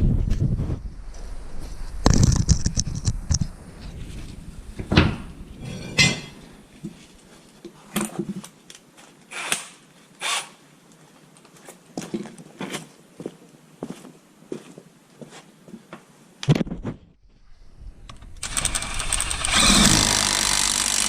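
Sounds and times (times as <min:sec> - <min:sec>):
metal tools knocking and scraping: 0:04.8 - 0:06.5.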